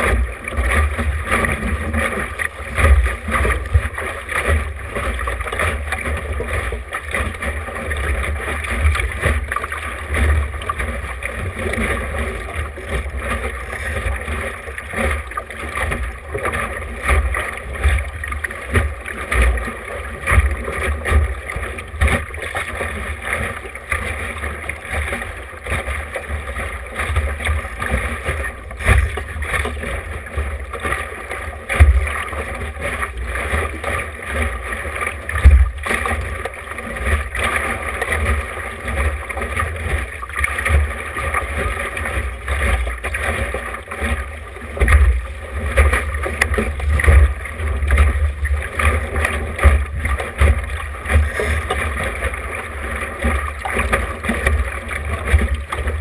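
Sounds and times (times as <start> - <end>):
water splashing along hull: 0.0 - 56.0.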